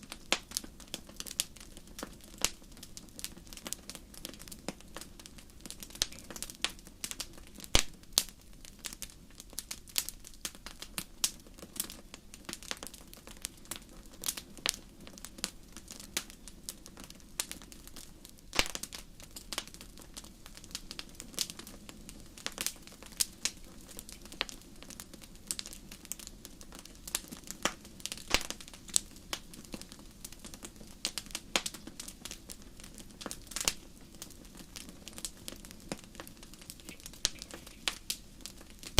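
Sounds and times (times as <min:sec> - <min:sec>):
low hiss of burning logs: 0:00.0 - 0:38.9
wood fire crackling and popping: 0:00.0 - 0:38.9.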